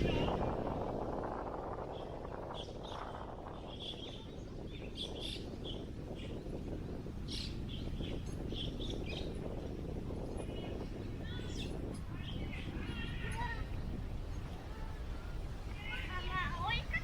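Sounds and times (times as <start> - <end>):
wind blowing: 0.0 - 17.0
small birds chirping: 1.9 - 14.7.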